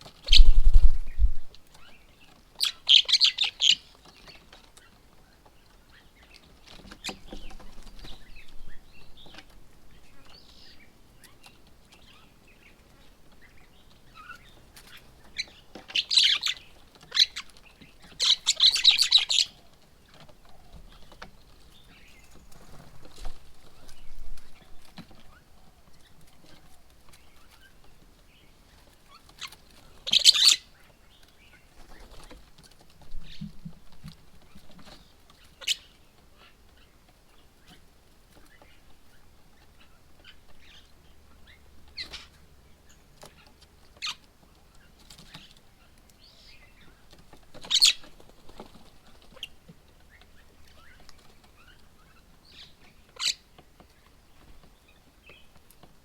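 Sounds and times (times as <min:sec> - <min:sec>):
bird wings fluttering and tapping: 0:00.0 - 0:01.8
faint bird chirps: 0:00.2 - 0:04.4.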